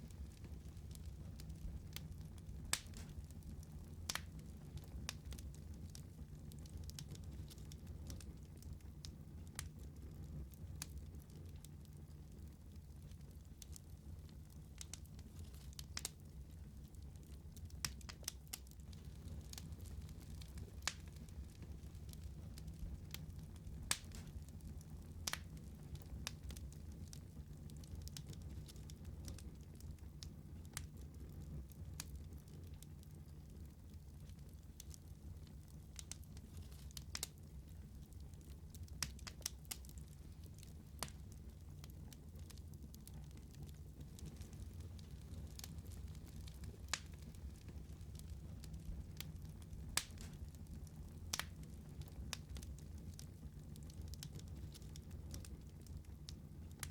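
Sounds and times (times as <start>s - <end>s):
wood fire crackling and popping: 0.0s - 56.9s.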